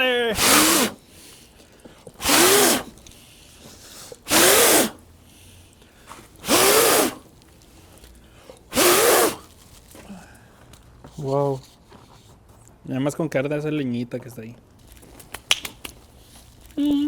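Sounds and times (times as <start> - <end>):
person blowing forcefully: 0.0 - 1.5, 2.2 - 7.3, 8.7 - 9.5.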